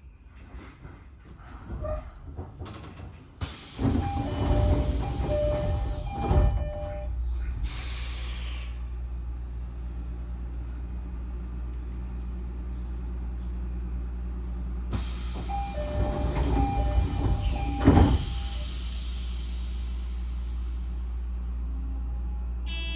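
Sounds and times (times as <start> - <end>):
low train equipment hum: 0.0 - 22.9
air hiss: 7.6 - 8.9, 14.9 - 21.0.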